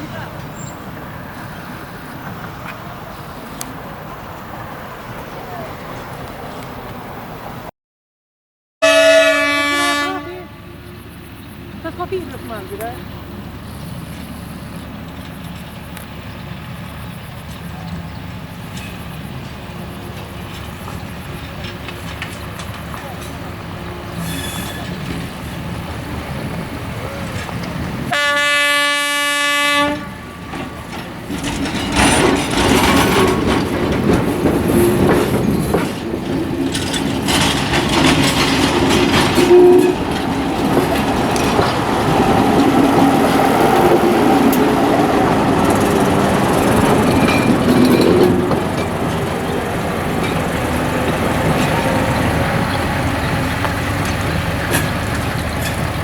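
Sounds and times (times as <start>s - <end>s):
train wheels clattering over rails: 0.0s - 7.0s, 10.8s - 56.0s
train horn blast: 8.8s - 10.8s, 23.8s - 25.0s, 28.1s - 30.8s, 39.2s - 40.2s.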